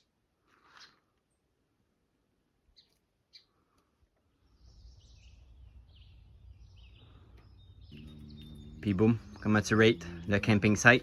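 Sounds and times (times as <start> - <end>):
bird chirps: 2.7 - 3.7, 4.3 - 11.0
low rumble: 4.6 - 11.0.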